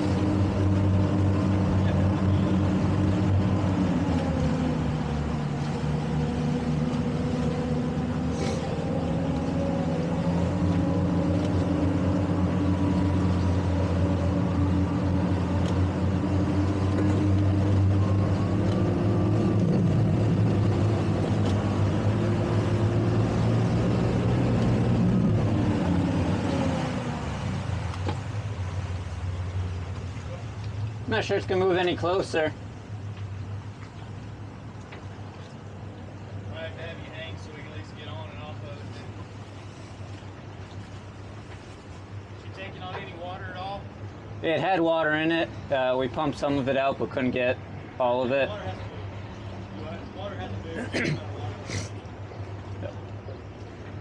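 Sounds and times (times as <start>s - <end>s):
towboat engine running: 0.0s - 54.0s.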